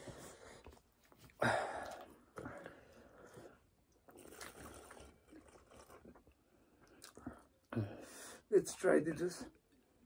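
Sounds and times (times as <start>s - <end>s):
faint chewing: 0.4s - 7.7s.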